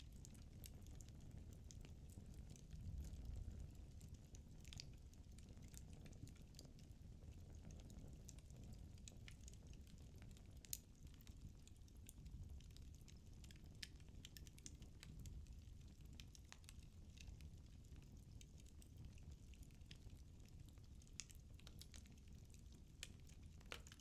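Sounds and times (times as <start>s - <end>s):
low rumble of flames: 0.0s - 24.0s
fireplace crackling: 0.1s - 24.0s.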